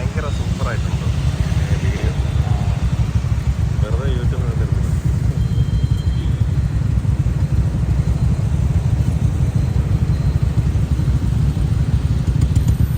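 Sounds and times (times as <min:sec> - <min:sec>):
motorcycle engine rumbling: 0:00.0 - 0:12.9.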